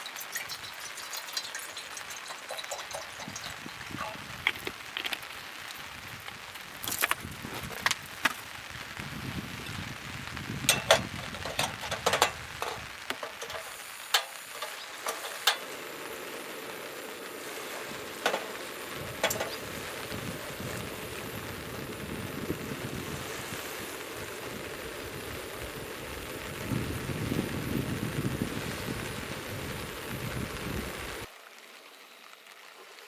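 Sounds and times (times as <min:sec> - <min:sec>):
rain hissing: 0:00.0 - 0:33.0.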